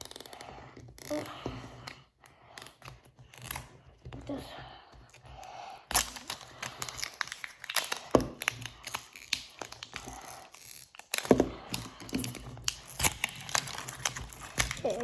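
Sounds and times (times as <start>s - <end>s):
plastic packaging crinkling: 5.9s - 15.0s.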